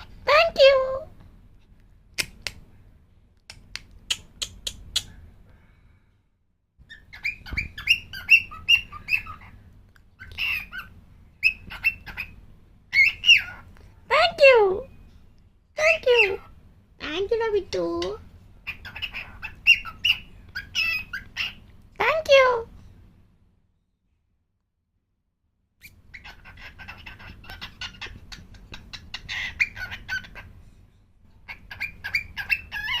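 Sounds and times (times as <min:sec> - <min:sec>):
cockatiel chirping and whistling: 0:06.9 - 0:09.6, 0:10.2 - 0:13.6, 0:18.7 - 0:21.6, 0:25.8 - 0:28.2, 0:28.9 - 0:30.5, 0:31.5 - 0:33.0.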